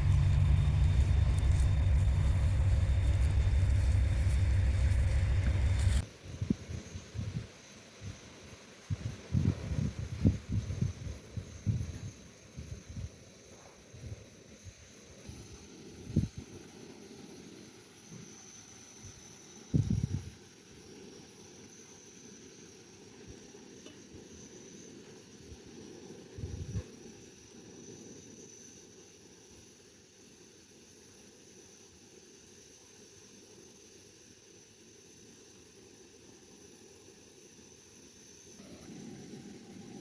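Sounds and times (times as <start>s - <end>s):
wood fire crackles: 0.0s - 6.0s.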